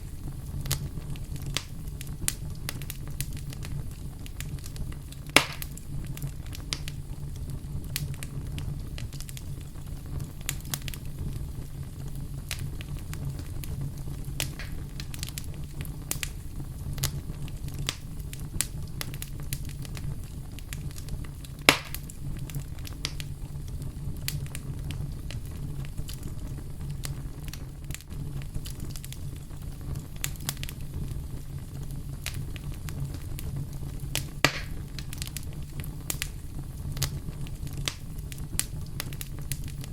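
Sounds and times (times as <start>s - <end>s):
campfire rumble and crackles: 0.0s - 39.9s
sharp fire pop: 5.2s - 5.8s, 14.4s - 15.4s, 21.6s - 22.2s, 34.1s - 35.3s.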